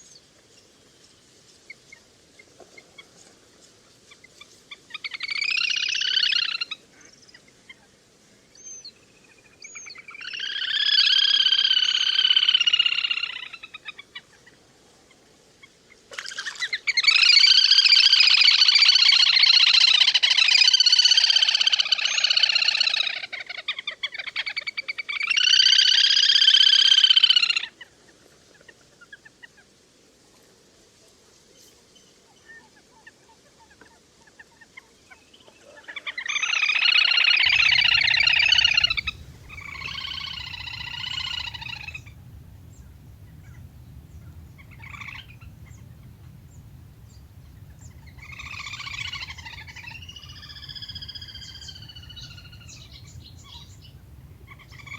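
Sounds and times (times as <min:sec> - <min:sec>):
whistling duck calls: 0:37.4 - 0:54.9.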